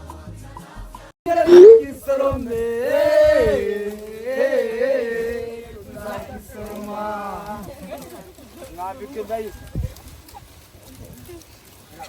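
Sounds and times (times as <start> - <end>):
voice holding wavering notes: 1.4 - 1.9.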